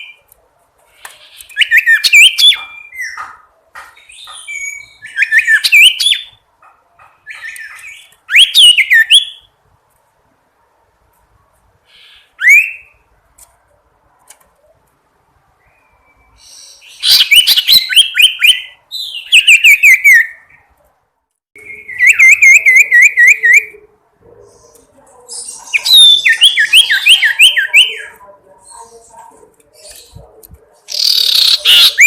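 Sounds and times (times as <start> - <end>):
songbird whistling and chirping: 1.3 - 3.2, 4.0 - 6.4, 7.3 - 9.5, 11.9 - 13.0, 15.6 - 20.6, 21.6 - 23.8, 25.3 - 28.2, 30.9 - 32.0.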